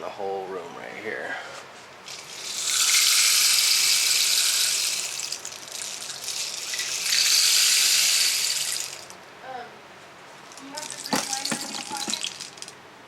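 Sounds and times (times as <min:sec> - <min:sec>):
long hisses: 0:02.1 - 0:09.2.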